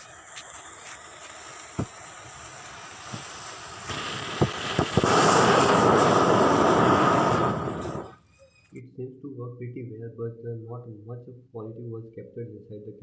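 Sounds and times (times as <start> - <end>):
sharp pops: 0.0 - 8.2
rocket motor exhaust rushing: 0.0 - 8.3
faint hiss: 0.0 - 9.2.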